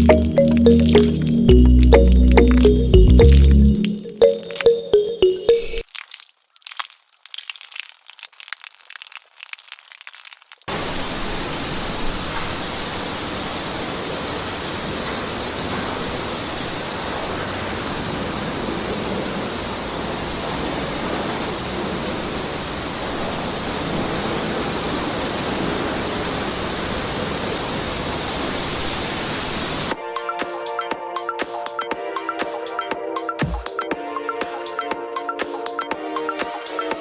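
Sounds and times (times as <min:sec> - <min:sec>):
water rushing from pump outlet: 0:07.2 - 0:29.9.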